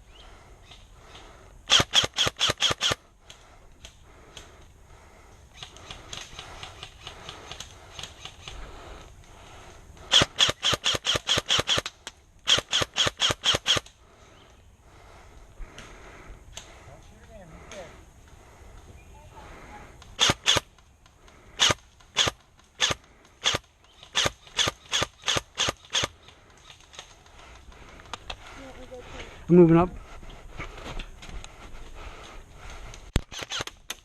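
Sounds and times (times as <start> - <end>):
airsoft gun rapid shots: 1.7 - 3.0, 10.1 - 13.9, 20.2 - 20.7, 21.6 - 26.2, 33.2 - 34.0.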